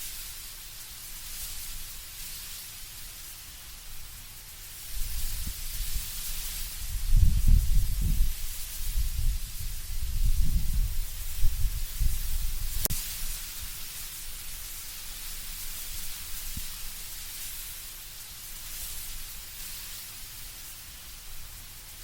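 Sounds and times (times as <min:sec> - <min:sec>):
leaves rustling in wind: 0:00.0 - 0:22.0
gusty low wind rumble: 0:05.0 - 0:12.9.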